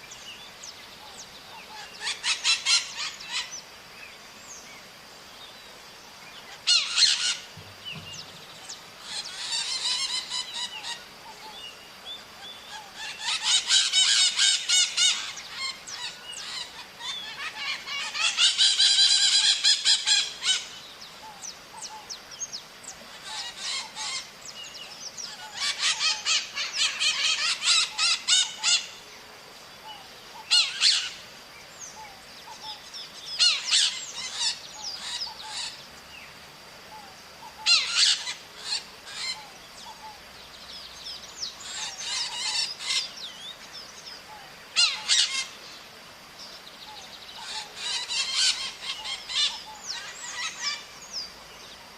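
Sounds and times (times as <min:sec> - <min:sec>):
parrots screeching: 0:01.8 - 0:03.5, 0:06.6 - 0:07.5, 0:09.0 - 0:11.0, 0:13.0 - 0:20.7, 0:23.2 - 0:24.3, 0:25.3 - 0:28.9, 0:30.4 - 0:31.2, 0:33.4 - 0:35.7, 0:37.5 - 0:39.4, 0:41.6 - 0:43.1, 0:44.8 - 0:45.6, 0:47.4 - 0:50.8.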